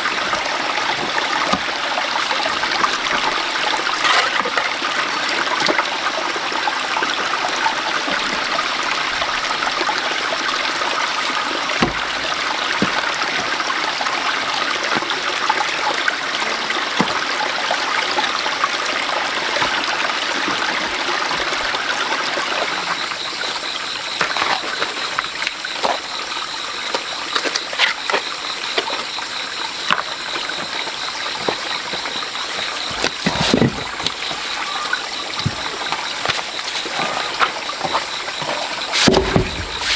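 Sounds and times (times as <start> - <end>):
water running steadily: 0.0 - 39.9
sharp knocks: 39.0 - 39.9.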